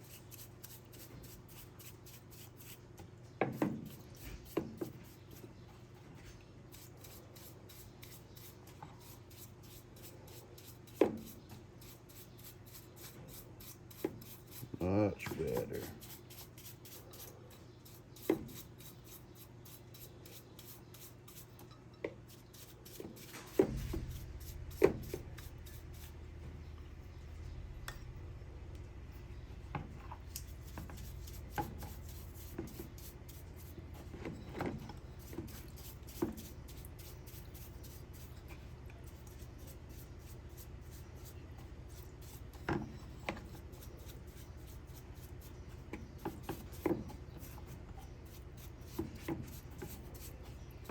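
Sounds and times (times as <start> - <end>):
low steady hum: 19.8 - 50.9.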